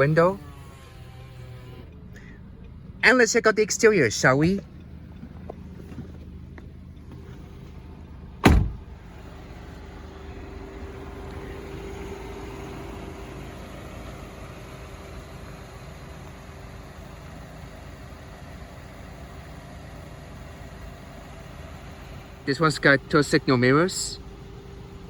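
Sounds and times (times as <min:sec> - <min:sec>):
car engine idling: 0:00.0 - 0:25.0
car door slamming: 0:08.4 - 0:09.1.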